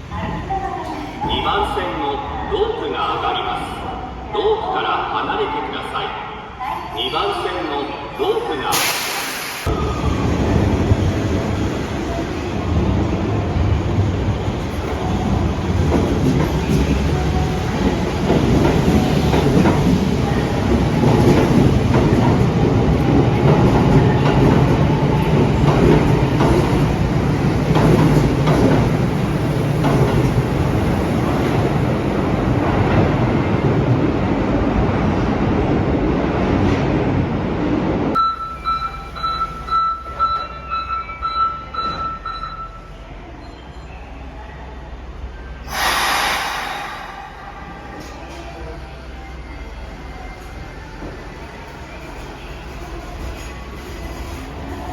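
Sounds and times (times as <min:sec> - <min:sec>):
train rumbling: 0:06.4 - 0:43.4, 0:44.7 - 0:54.9
train wheel squeal: 0:38.7 - 0:44.7.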